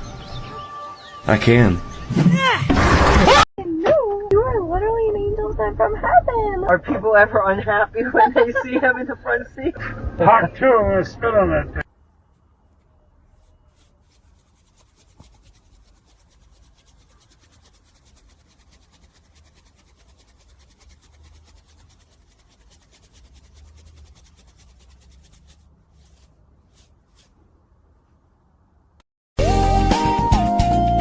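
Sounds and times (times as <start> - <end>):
faint rubbing and scratching: 12.2 - 27.6.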